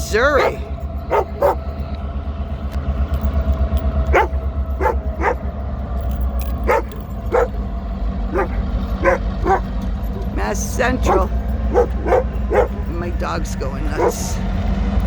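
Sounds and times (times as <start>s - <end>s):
low engine rumble: 0.0s - 15.0s
dog barking: 0.2s - 1.7s, 4.1s - 5.5s, 6.5s - 7.7s, 8.3s - 9.7s, 10.8s - 13.2s, 13.8s - 14.4s.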